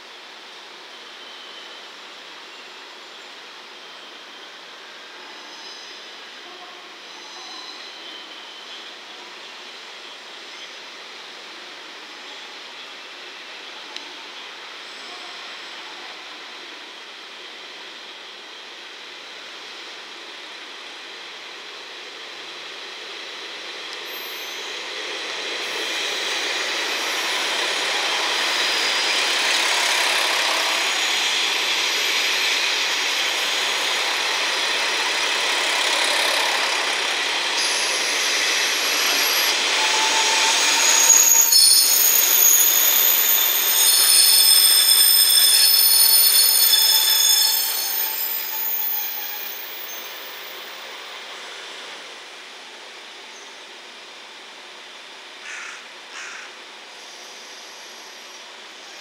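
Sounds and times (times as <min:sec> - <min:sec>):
train wheels rolling on rails: 0:19.0 - 0:53.0
high-pitched wheel squeals: 0:37.6 - 0:50.6.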